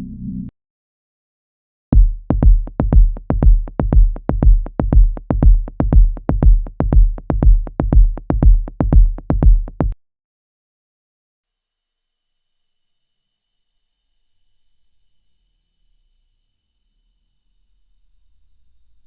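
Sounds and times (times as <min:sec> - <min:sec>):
deep booming heartbeat thumps: 0:02.0 - 0:10.0.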